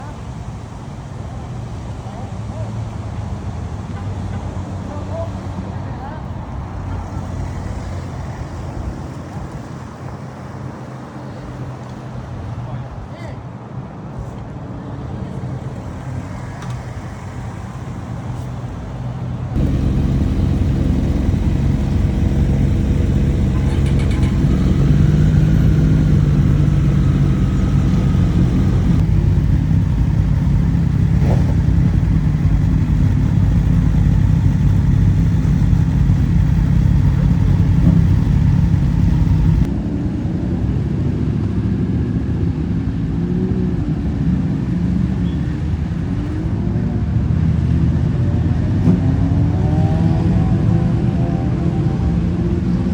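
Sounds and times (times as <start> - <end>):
motorcycle engines rumbling: 19.4 - 52.9.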